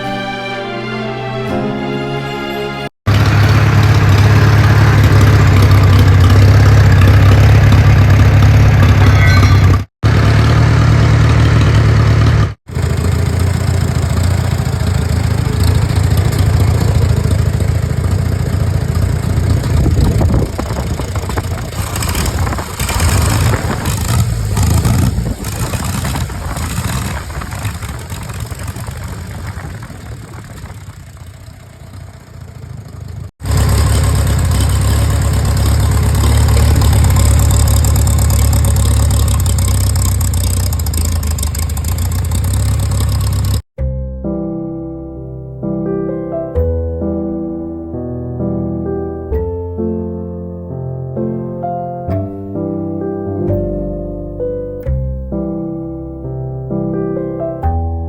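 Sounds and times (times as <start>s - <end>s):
tractor engine running: 3.1s - 43.6s.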